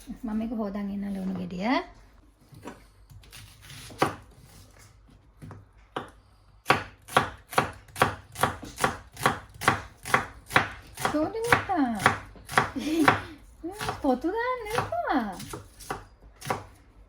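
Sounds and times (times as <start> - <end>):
knife chopping on cutting board: 2.6 - 4.6, 5.4 - 16.8.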